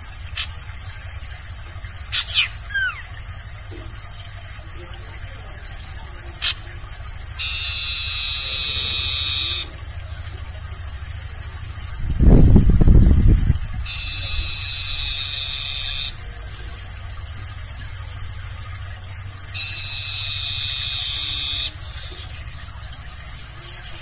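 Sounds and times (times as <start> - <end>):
barn owl screeching: 2.1 - 3.1, 7.4 - 9.7, 13.9 - 16.2, 19.6 - 22.1.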